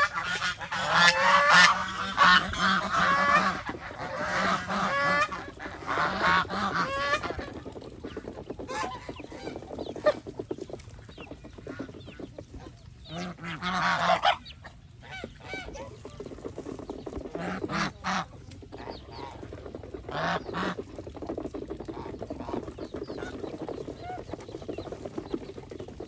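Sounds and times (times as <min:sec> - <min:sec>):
geese honking: 0:00.0 - 0:10.4, 0:11.6 - 0:20.9.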